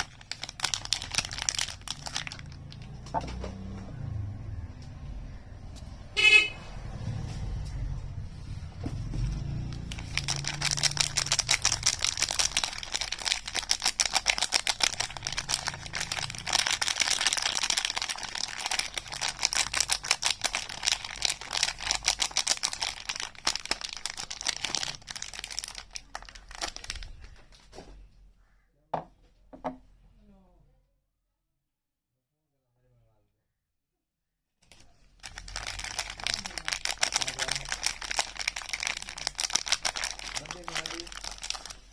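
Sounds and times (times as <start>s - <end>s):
packaging crinkling and tearing: 0.0s - 3.8s, 8.9s - 27.8s, 34.7s - 41.9s.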